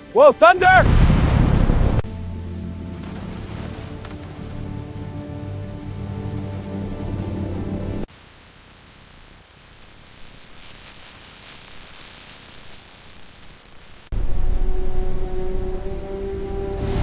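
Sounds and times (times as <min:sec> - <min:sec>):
background music: 0:00.0 - 0:08.1, 0:14.2 - 0:17.0
deep rumble: 0:00.8 - 0:08.1, 0:14.1 - 0:17.0
steady soft hiss: 0:08.0 - 0:17.0.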